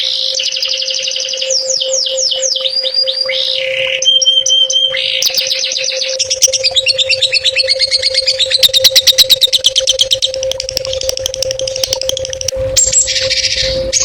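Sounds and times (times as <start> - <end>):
songbird chattering song: 0.0 - 14.0
steady low hum: 0.0 - 14.0.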